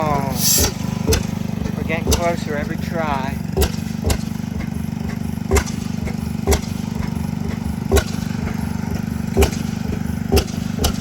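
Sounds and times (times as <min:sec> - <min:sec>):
engine firing bang: 0:00.0 - 0:02.6
engines chugging: 0:00.0 - 0:11.0.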